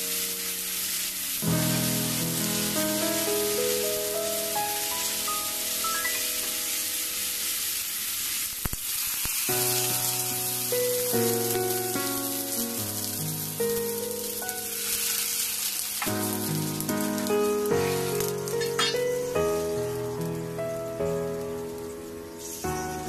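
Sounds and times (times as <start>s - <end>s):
background music with held notes: 0.0s - 7.3s
food sizzling in a hot wok: 0.0s - 23.0s.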